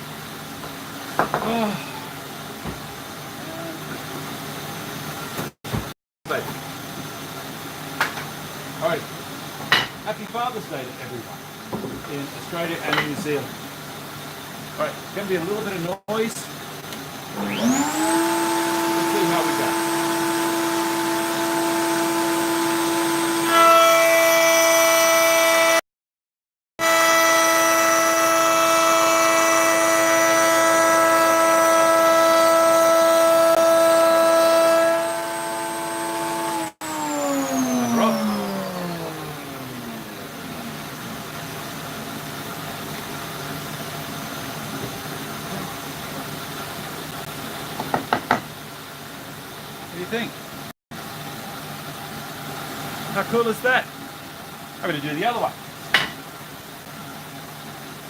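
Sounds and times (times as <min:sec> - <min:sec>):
dust extractor humming: 0:10.4 - 0:25.6, 0:26.8 - 0:47.8
electric router running: 0:17.3 - 0:25.6, 0:26.8 - 0:41.2.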